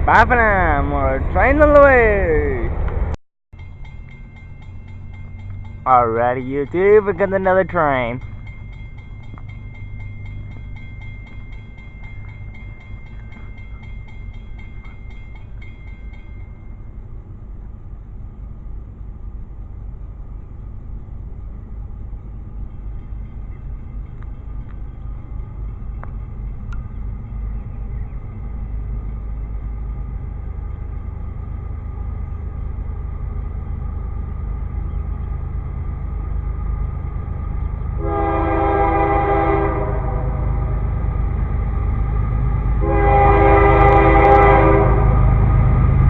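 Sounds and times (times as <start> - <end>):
train rumbling along rails: 0.0 - 46.0
high ringing with fast ticking: 3.6 - 17.4.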